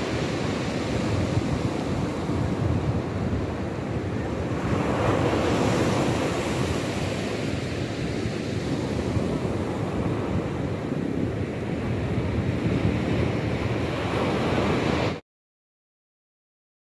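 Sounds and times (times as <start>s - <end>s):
sea waves breaking on shore: 0.0s - 15.2s
wind rumbling on microphone: 0.0s - 15.2s.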